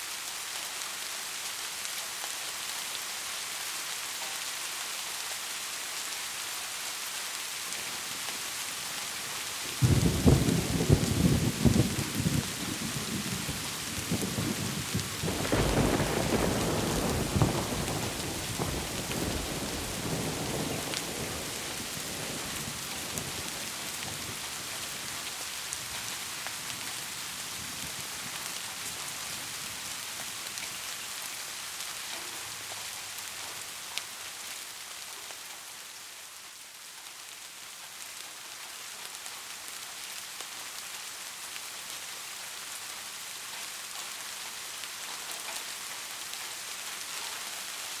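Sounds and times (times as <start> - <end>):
steady rainfall: 0.0 - 48.0
thunder rumble: 9.8 - 24.3.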